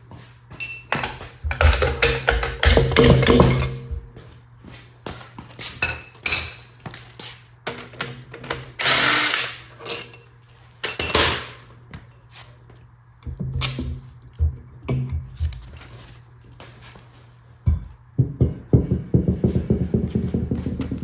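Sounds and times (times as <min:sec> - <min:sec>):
clicks and knocks of metal parts: 0:00.6 - 0:04.0, 0:07.7 - 0:11.6
power tool whining: 0:08.8 - 0:09.6.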